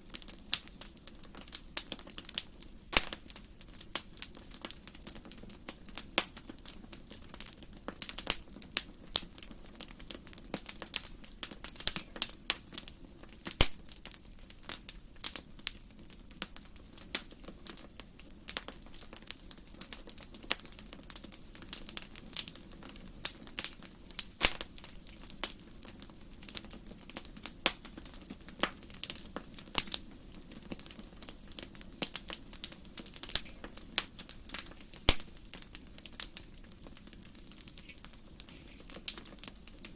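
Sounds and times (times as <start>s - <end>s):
wood fire crackling and popping: 0.0s - 39.9s
sharp fire pop: 2.9s - 3.2s, 24.4s - 24.7s, 35.1s - 35.4s.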